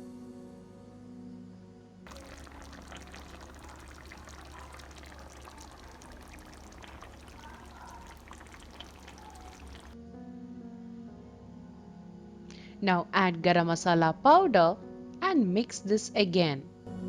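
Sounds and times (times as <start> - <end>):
curry bubbling in a pan: 2.1 - 10.0
background music: 9.7 - 17.0.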